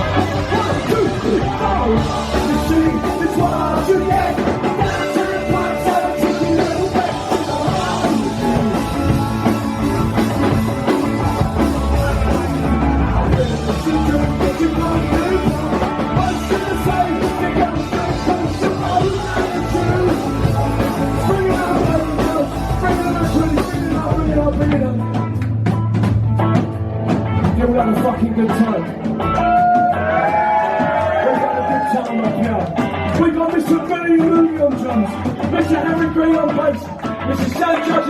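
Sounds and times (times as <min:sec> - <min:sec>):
person singing: 0:00.0 - 0:25.2
live rock band playing: 0:00.0 - 0:38.0.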